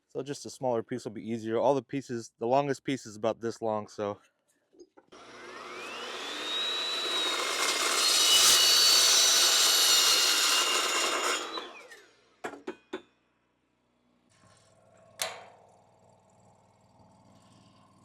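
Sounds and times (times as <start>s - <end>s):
electric saw cutting steel: 5.2s - 12.2s.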